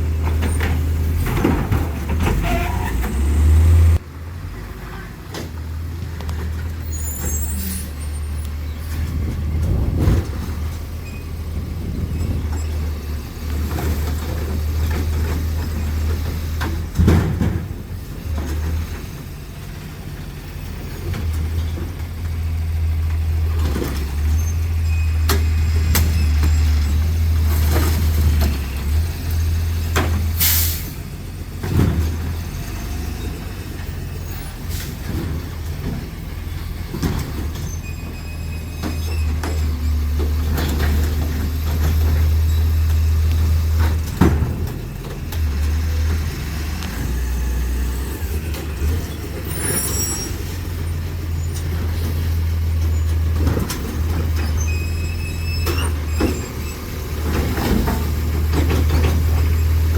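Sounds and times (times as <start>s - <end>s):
garbage truck running: 0.0s - 59.9s
knocks and clatter: 0.1s - 3.2s
air brake hiss: 30.4s - 31.0s.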